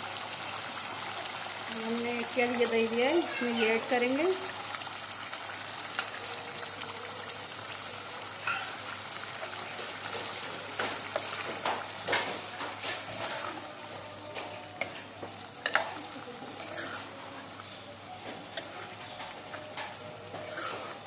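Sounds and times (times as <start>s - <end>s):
curry sizzling in metal pan: 0.0s - 21.0s
metal spoon scraping pan: 16.6s - 17.1s, 18.4s - 21.0s.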